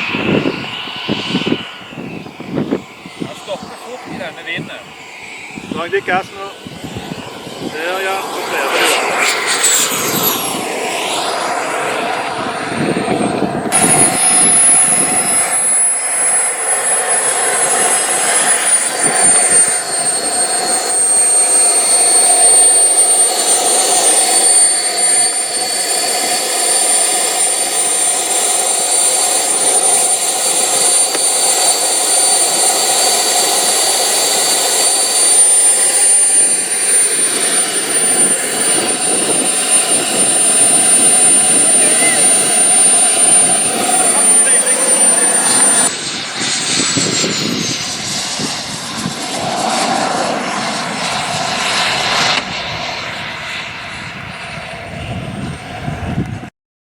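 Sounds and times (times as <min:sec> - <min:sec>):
model jet engine whining: 0:00.0 - 0:56.5.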